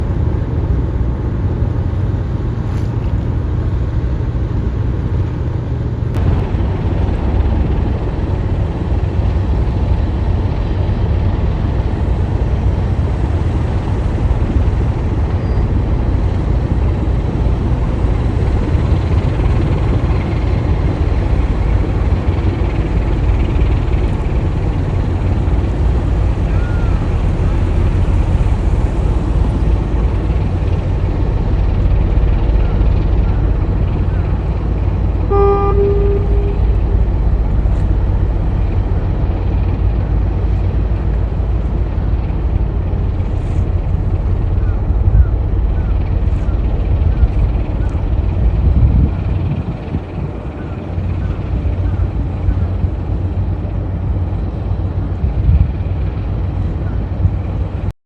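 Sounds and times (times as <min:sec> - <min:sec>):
tugboat engines rumbling: 0:00.0 - 0:57.9.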